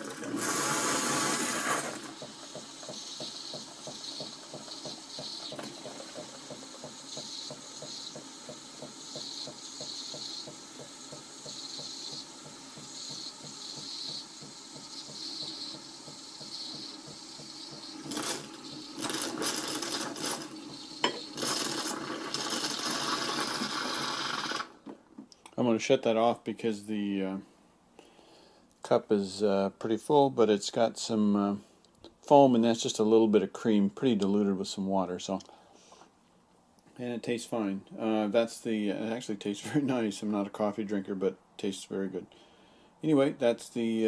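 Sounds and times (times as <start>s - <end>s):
hissing steam: 0.0s - 24.8s
coffee machine pumping rattle: 0.0s - 24.9s.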